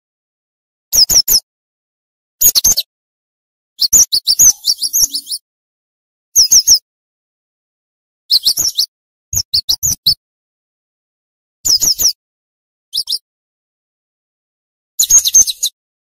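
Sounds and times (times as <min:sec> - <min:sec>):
bird singing high downward notes: 0:03.8 - 0:05.4.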